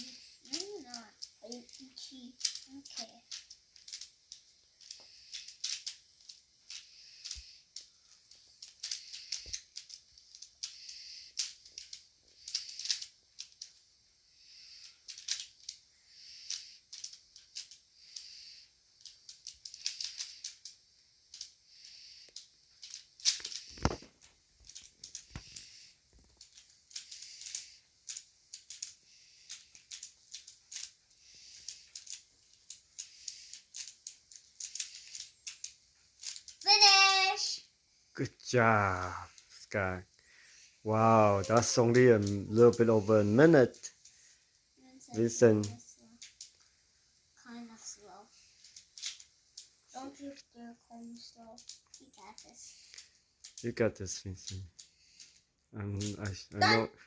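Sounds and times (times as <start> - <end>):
puzzle cube clicking: 23.2 - 37.1.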